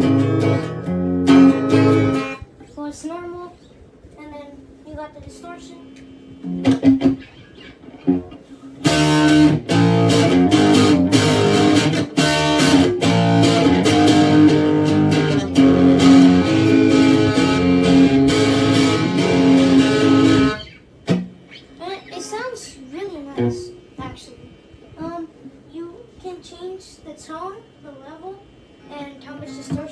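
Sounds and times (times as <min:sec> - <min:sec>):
distorted electric guitar chords: 0:00.0 - 0:02.4, 0:06.3 - 0:21.6
quiet guitar notes: 0:06.4 - 0:22.2.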